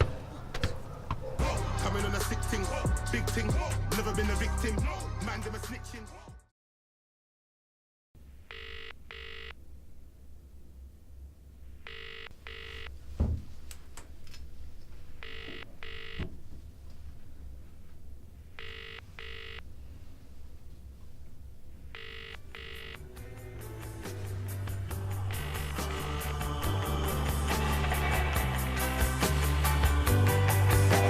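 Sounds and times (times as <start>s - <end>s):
telephone double ringing: 8.5s - 9.6s, 11.9s - 12.9s, 15.2s - 16.2s, 18.6s - 19.6s, 21.9s - 23.0s
low thump: 13.2s - 13.5s.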